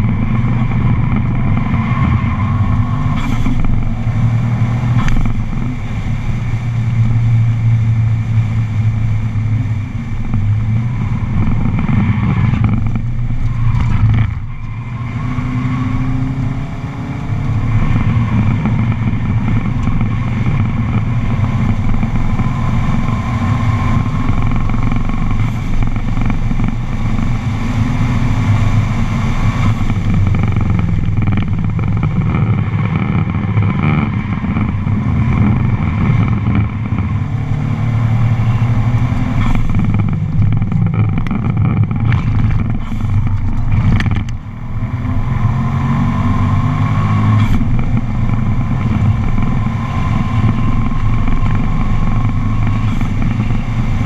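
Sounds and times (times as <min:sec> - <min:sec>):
car engine running hard: 0:00.0 - 0:54.0.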